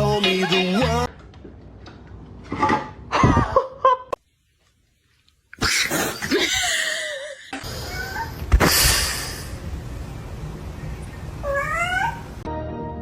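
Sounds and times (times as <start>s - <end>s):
cat meowing and yowling: 11.4s - 12.4s.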